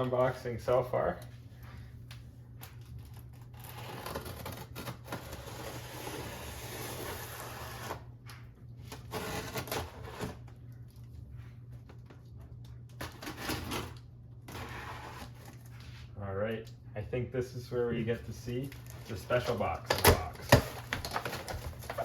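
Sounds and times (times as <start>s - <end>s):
cardboard and foam rustling: 8.8s - 10.6s, 13.0s - 16.2s, 18.1s - 22.0s.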